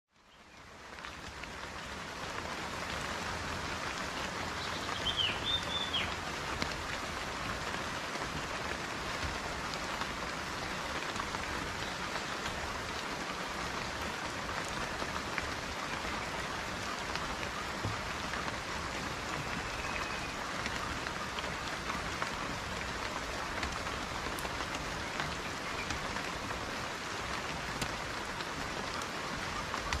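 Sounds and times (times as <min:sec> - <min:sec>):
dense rain hiss: 0:00.2 - 0:30.0
bird chirps: 0:04.6 - 0:06.1.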